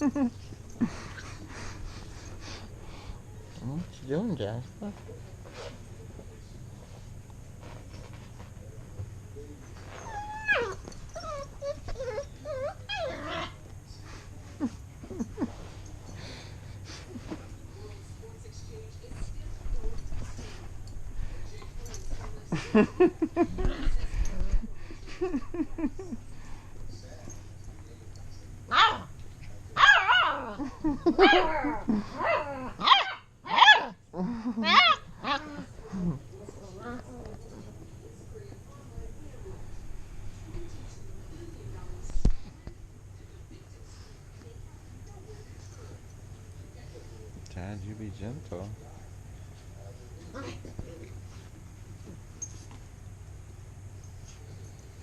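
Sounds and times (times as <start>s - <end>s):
puppies whining and whimpering: 9.8s - 13.6s
puppy low growl: 10.0s - 13.6s, 30.1s - 32.9s, 33.8s - 37.8s, 50.2s - 50.8s.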